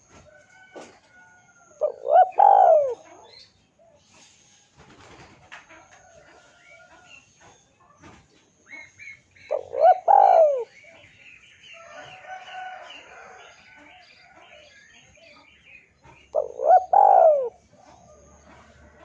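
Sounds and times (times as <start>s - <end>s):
small birds chirping: 1.2s - 5.0s, 6.0s - 19.0s
dove cooing: 1.8s - 4.0s, 8.7s - 11.1s, 16.3s - 19.0s.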